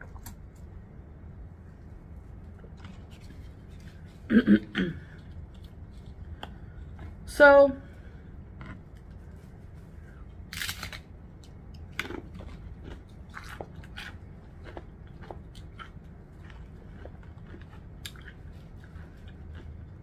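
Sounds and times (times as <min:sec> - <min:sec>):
crunching chips: 0:10.4 - 0:20.0.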